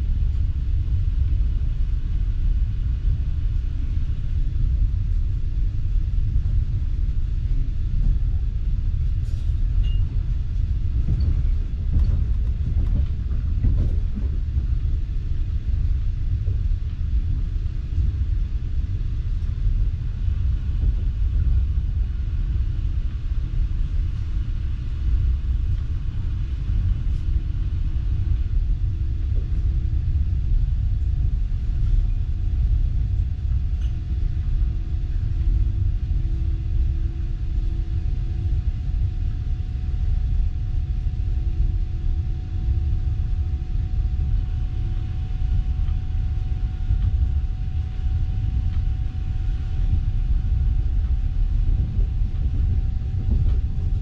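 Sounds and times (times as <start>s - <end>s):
faint steady hum: 0.0s - 54.0s
train carriage rumble: 0.0s - 54.0s.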